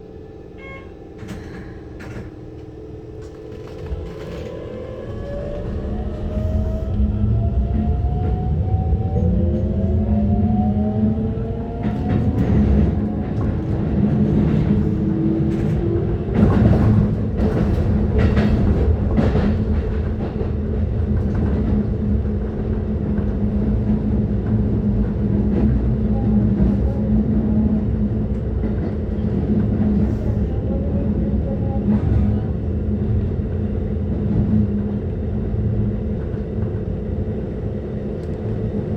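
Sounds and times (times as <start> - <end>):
electric train motor whine: 0.0 - 13.9
train running rumble: 0.0 - 38.9.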